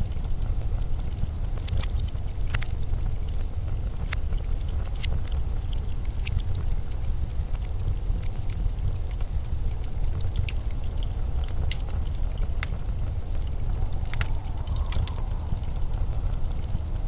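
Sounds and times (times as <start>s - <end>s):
sharp crackling clicks: 0.0s - 17.0s
wind rumbling: 0.2s - 17.0s
faint high whistle: 13.6s - 17.0s.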